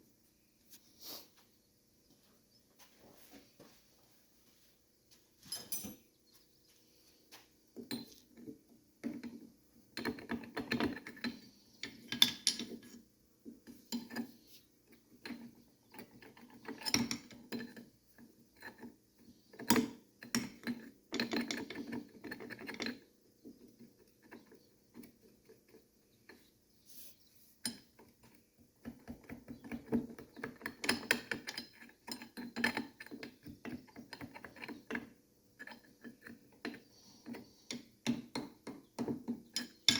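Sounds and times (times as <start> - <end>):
hand tools clinking on metal: 5.4 - 6.1, 37.7 - 39.9.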